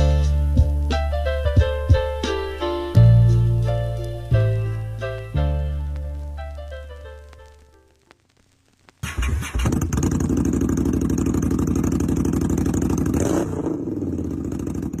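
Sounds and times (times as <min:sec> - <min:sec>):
motorcycle engine running: 0:09.0 - 0:15.0.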